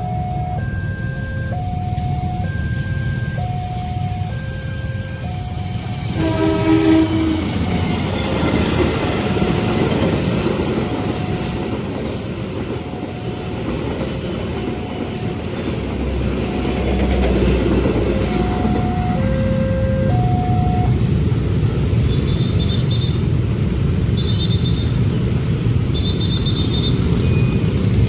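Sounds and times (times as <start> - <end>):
level crossing two-pitch alarm: 0.0 - 6.5, 18.2 - 21.0
train wheels rumbling and clattering: 5.8 - 28.0
train horn blast: 6.1 - 7.9.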